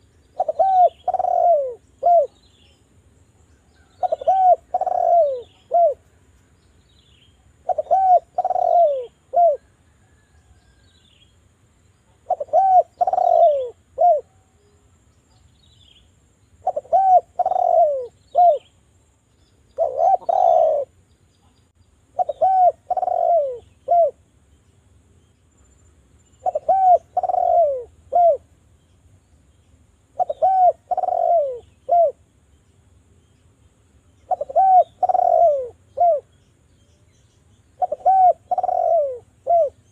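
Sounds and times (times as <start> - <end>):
dove cooing: 0.0 - 2.4, 3.9 - 6.0, 7.6 - 10.3, 12.1 - 14.5, 16.6 - 18.7, 19.8 - 21.0, 22.1 - 24.2, 26.4 - 28.5, 30.1 - 32.2, 34.2 - 36.4, 37.7 - 39.9.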